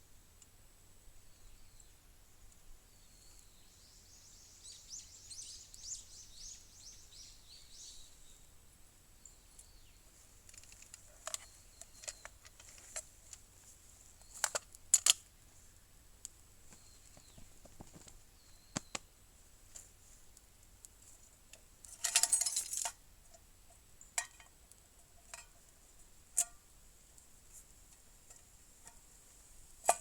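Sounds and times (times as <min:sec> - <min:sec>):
bird singing falling notes: 0:16.7 - 0:19.1.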